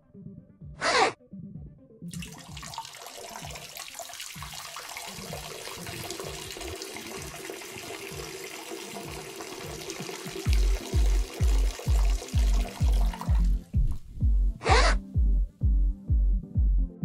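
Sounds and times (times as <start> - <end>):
running water: 2.1 - 13.8
loud bass beat: 10.5 - 17.0
muffled bass beat: 10.5 - 17.0.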